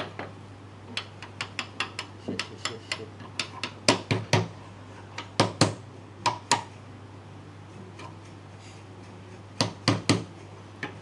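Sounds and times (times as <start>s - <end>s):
mallet striking wood: 3.3s - 4.5s, 5.3s - 6.7s, 9.6s - 10.3s.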